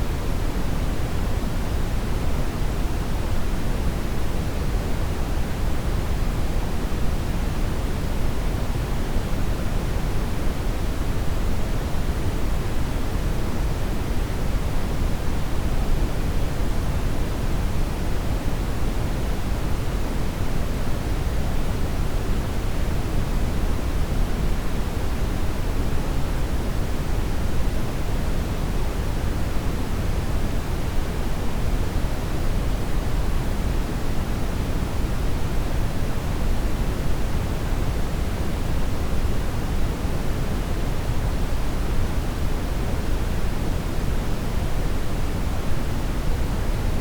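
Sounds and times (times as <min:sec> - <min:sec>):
brown noise hiss: 0:00.0 - 0:47.0.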